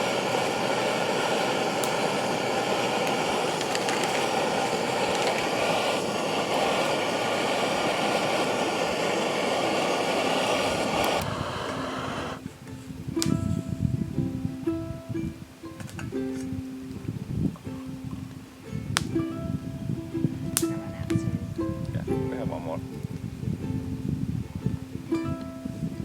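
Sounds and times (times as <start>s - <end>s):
vehicle engine running: 0.0s - 12.4s.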